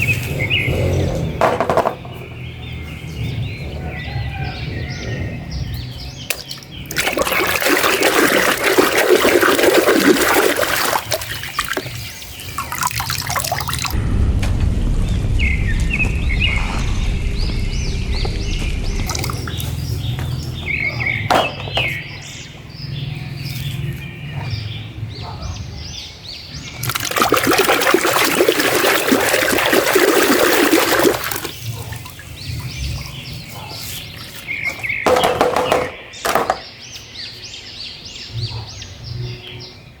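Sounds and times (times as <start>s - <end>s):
small birds chirping: 0.0s - 1.4s, 2.0s - 14.0s, 15.4s - 40.0s
knocks: 1.4s - 2.2s, 21.3s - 22.0s, 34.7s - 36.7s
running water: 6.3s - 14.0s, 18.9s - 20.1s, 26.8s - 33.1s.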